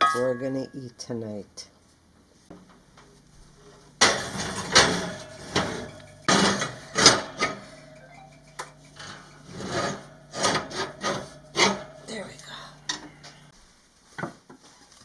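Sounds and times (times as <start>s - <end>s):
utensils scraping and clanking: 3.1s - 13.5s.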